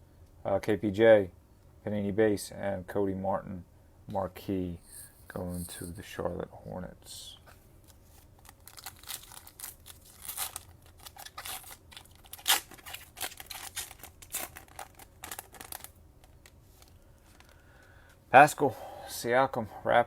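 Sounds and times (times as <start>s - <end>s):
cards being handled: 4.8s - 6.0s
foil wrapper tearing and crinkling: 8.1s - 16.9s.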